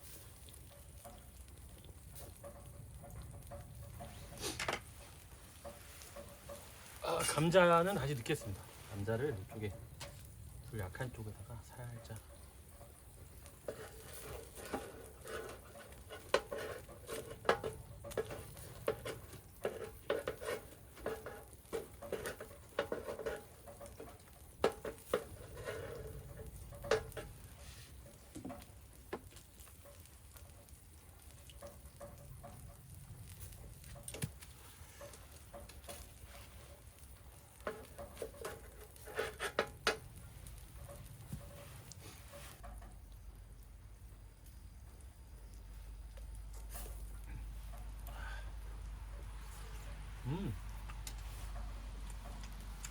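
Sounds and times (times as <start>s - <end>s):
fire sizzling: 0.0s - 52.9s
rain patter: 0.0s - 52.9s
clicks and knocks handling food: 11.8s - 43.8s, 44.4s - 52.9s.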